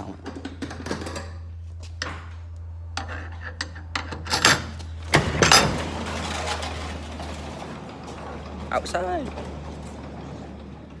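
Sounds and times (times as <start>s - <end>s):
steady low hum: 0.0s - 11.0s
clicks and clattering knocks: 3.0s - 11.0s.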